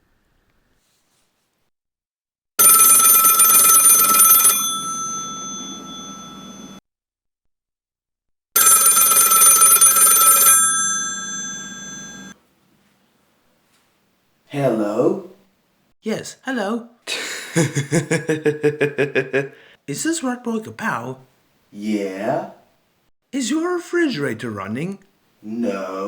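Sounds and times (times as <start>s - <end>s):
telephone bell ringing: 2.6s - 6.8s, 8.6s - 12.4s.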